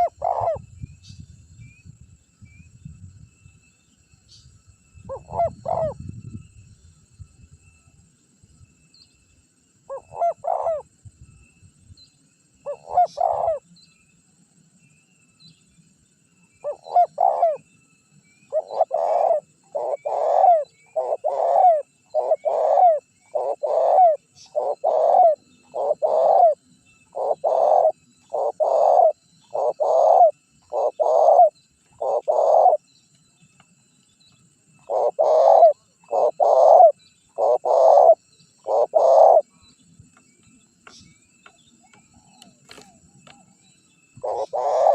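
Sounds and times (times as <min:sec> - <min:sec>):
dove cooing: 0:00.0 - 0:00.6, 0:05.1 - 0:06.0, 0:09.9 - 0:10.8, 0:12.7 - 0:13.6, 0:16.6 - 0:17.6, 0:18.5 - 0:32.8, 0:34.8 - 0:39.6, 0:44.2 - 0:44.9.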